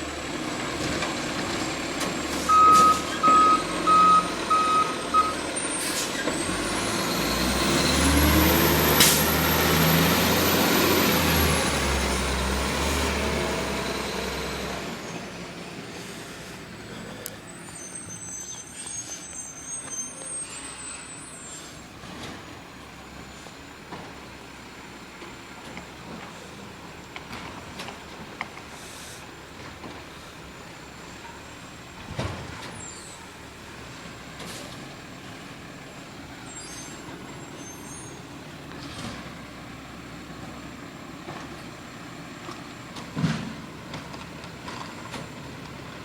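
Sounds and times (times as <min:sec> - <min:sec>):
truck engine revving: 0:00.0 - 0:20.4
reversing alarm beeping: 0:02.4 - 0:05.8, 0:17.5 - 0:21.7
air-brake hiss: 0:05.7 - 0:06.3, 0:15.8 - 0:22.0, 0:28.7 - 0:29.3.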